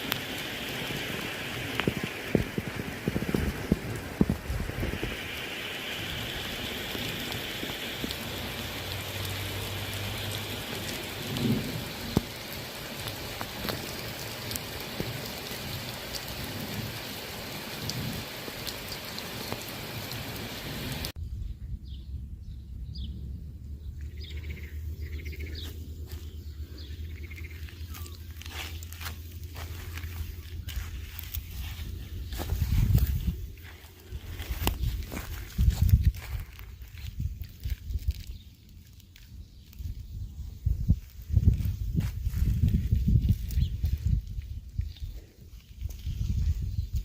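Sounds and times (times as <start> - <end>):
rain hissing: 0.0 - 21.2, 24.2 - 47.0
water drips and clicks: 0.0 - 21.2, 27.1 - 40.2, 40.9 - 47.0
low hum: 21.2 - 35.5.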